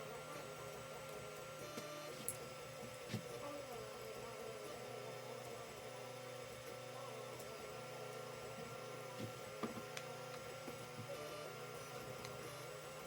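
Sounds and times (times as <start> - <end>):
stepper motors humming: 0.0 - 13.0.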